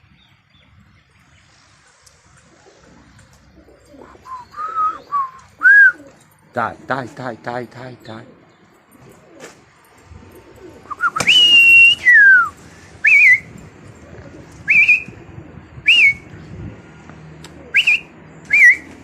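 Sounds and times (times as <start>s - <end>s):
person whistling: 4.2s - 6.0s, 10.9s - 13.5s, 15.9s - 16.2s, 17.8s - 18.9s.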